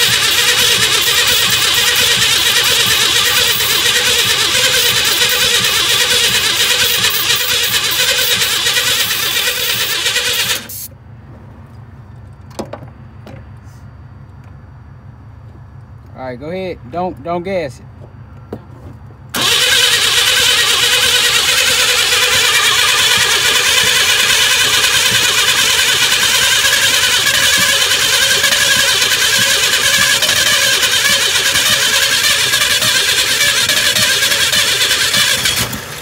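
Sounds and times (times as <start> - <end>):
engine cranking by starter: 0.0 - 10.9, 19.3 - 36.0.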